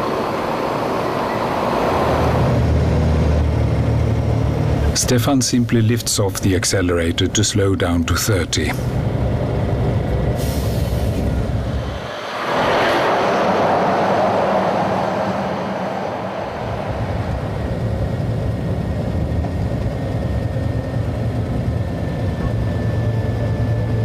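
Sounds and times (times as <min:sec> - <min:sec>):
road noise: 0:00.0 - 0:24.0
truck engine drone: 0:00.0 - 0:24.0.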